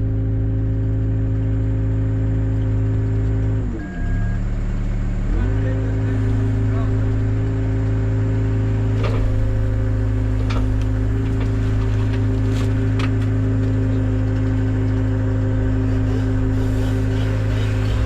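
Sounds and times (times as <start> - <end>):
machine engine running: 0.0 - 18.0.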